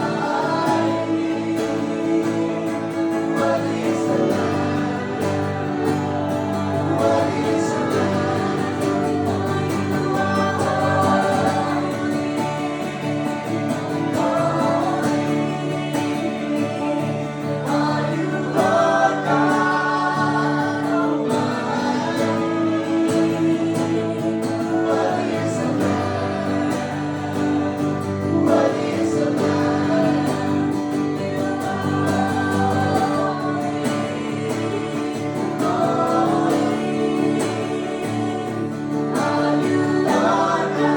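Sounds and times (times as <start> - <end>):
acoustic guitar: 0.0 - 40.9
voices singing worship song: 0.0 - 40.9.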